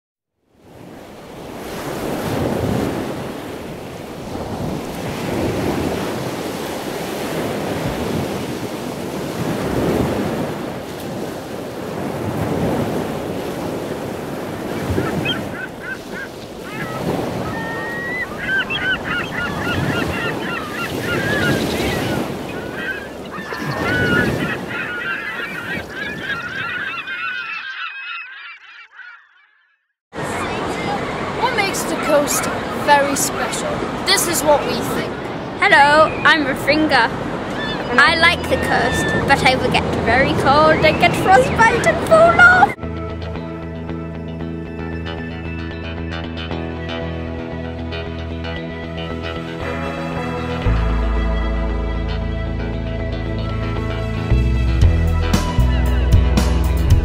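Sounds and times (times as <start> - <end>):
surf breaking on a beach: 0.6 - 26.6, 30.1 - 42.8
birds calling: 13.4 - 42.8, 44.0 - 51.7.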